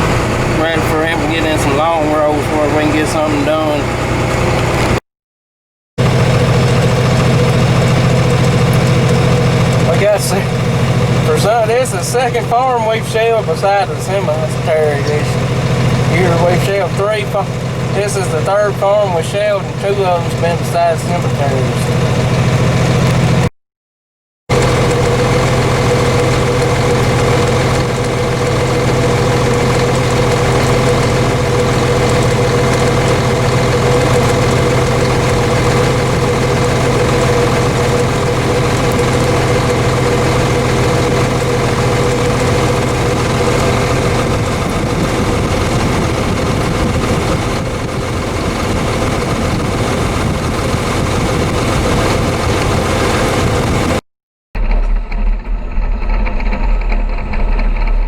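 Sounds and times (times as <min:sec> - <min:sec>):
heavy vehicle engine humming: 0:00.0 - 0:05.0, 0:06.0 - 0:23.5, 0:24.5 - 0:54.0, 0:54.6 - 0:58.0
deep low tone: 0:54.6 - 0:58.0.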